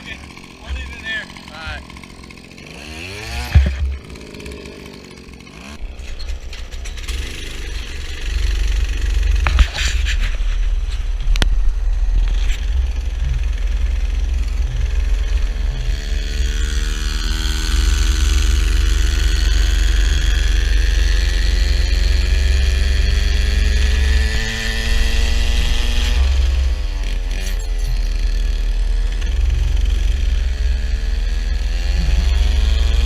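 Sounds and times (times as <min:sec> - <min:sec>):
small bike engine running: 0:00.0 - 0:33.0
heavy low rumble: 0:05.8 - 0:27.4.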